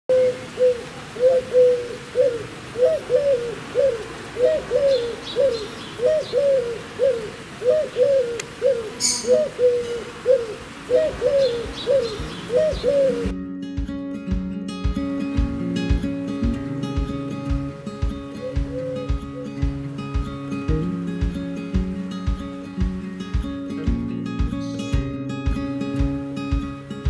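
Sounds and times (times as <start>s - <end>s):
bird low rising-and-falling call: 0.1s - 13.3s, 18.4s - 19.6s
faint high bird chirps: 9.0s - 9.5s.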